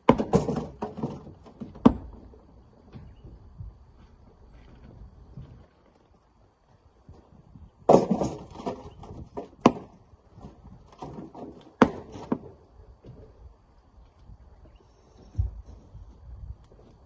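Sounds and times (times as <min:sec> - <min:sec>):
rocks knocking and clattering: 0:00.0 - 0:02.3, 0:07.8 - 0:13.2.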